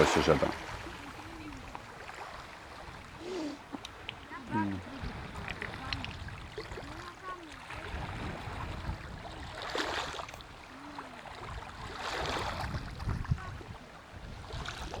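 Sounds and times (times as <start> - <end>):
surf on stony shore: 0.0 - 15.0
wind rumbling on microphone: 3.9 - 10.7, 11.3 - 15.0.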